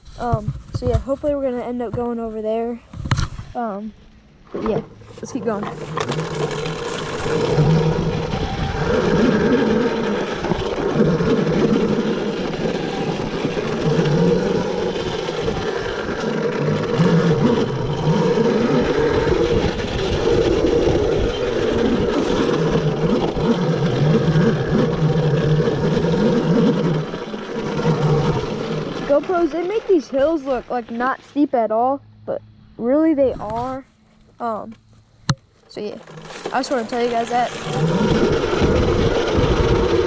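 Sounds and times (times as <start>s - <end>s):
electric motor whine: 4.0s - 31.4s, 36.0s - 40.0s.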